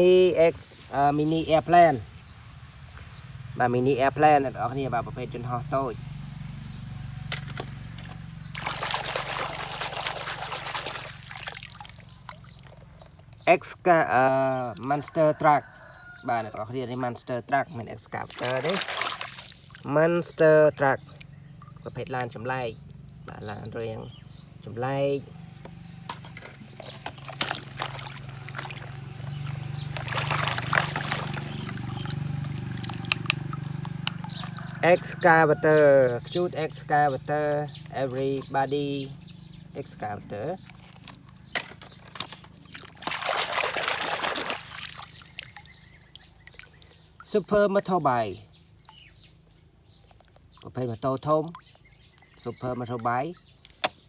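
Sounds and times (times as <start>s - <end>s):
water trickling and spattering: 6.5s - 13.8s, 18.0s - 24.6s, 25.2s - 35.3s, 40.6s - 54.0s
plastic toys clicking and knocking: 40.8s - 42.6s.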